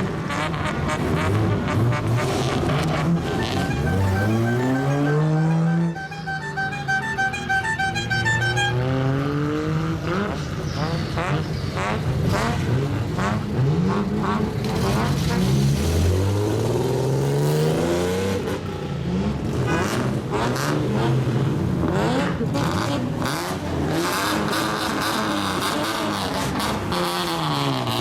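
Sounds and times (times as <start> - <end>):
car exhausts revving: 0.0 - 28.0.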